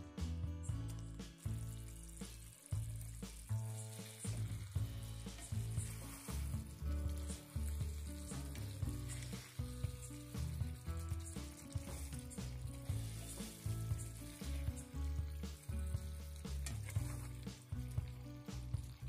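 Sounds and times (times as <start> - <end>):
background music with bass line: 0.0 - 19.0
food sizzling in a pan: 0.6 - 19.0
spatula scraping and clicking: 16.4 - 17.4.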